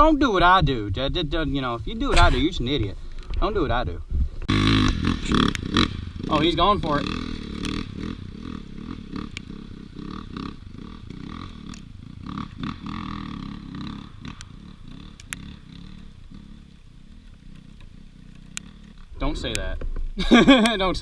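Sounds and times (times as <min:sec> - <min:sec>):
dirt bike engine revving: 0:02.1 - 0:02.8, 0:04.5 - 0:19.5.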